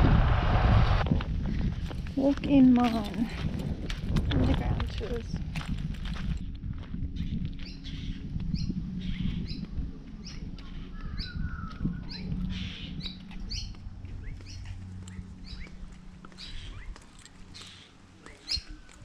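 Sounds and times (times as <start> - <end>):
steady low hum: 0.0 - 19.0
bird chirping: 7.2 - 19.0.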